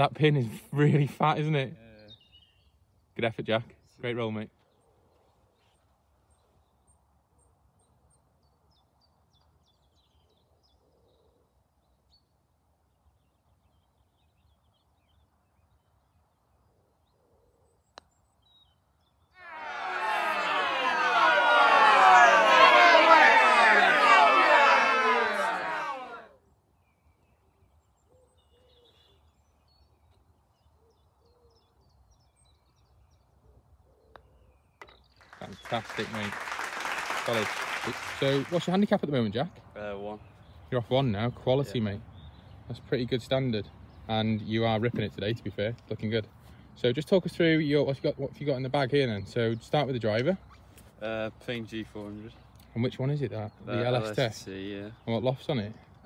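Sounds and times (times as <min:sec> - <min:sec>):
faint birdsong chirps: 0:00.0 - 0:19.4, 0:26.3 - 0:36.4, 0:38.1 - 0:56.0
high chirps of small birds: 0:01.8 - 0:12.4.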